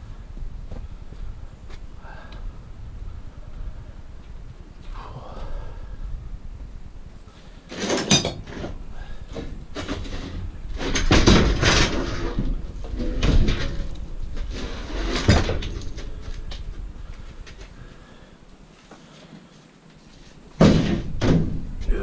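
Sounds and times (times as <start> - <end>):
scrap metal clanking: 9.4 - 16.3.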